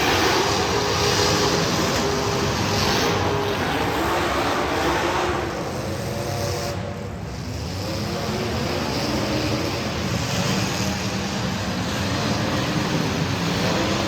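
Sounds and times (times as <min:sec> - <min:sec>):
race car engines at speed: 0:00.0 - 0:14.0.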